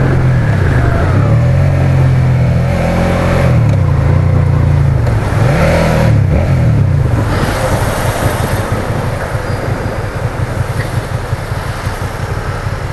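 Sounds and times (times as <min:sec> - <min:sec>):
motorcycle engine slowing to idle: 0:06.1 - 0:12.9.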